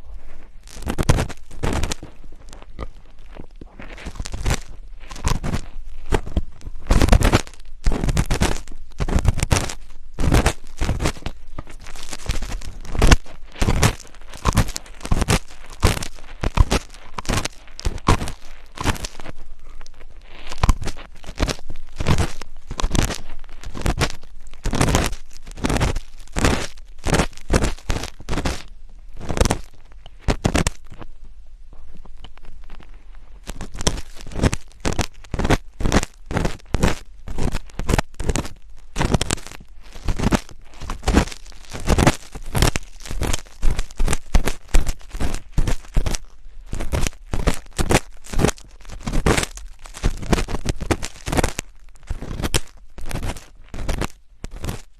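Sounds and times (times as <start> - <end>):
scratching against microphone: 0.0 - 54.9.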